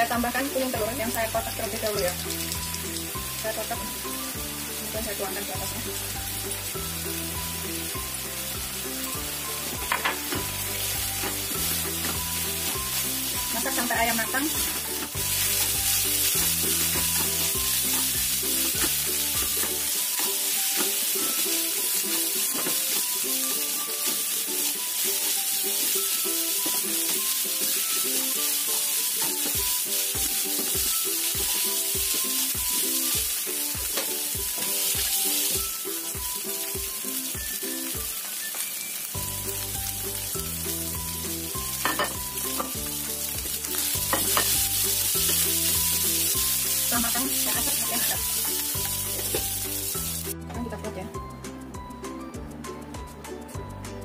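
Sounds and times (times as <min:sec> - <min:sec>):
meat sizzling in oil: 0:00.0 - 0:50.4
background music with beat: 0:24.8 - 0:54.0.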